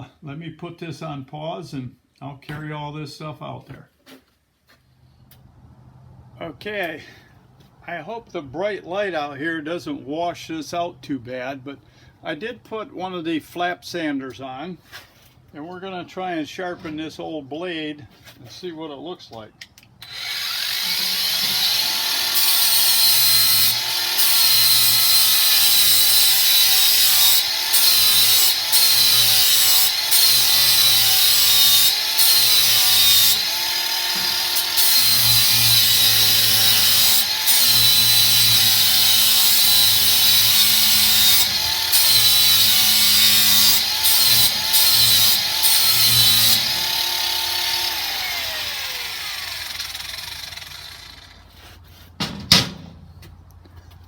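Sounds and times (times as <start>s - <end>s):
angle grinder motor whine: 20.0s - 51.4s
grinder winding down: 20.0s - 51.5s.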